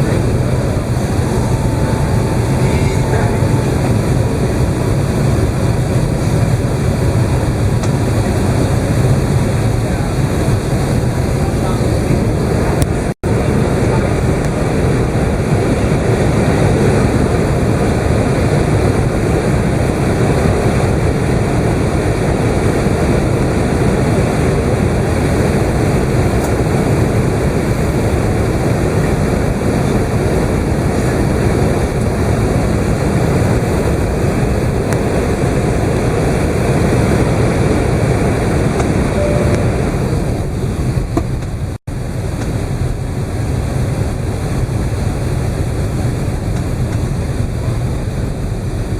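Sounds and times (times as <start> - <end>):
aircraft cabin engine rumble: 0.0 - 48.9.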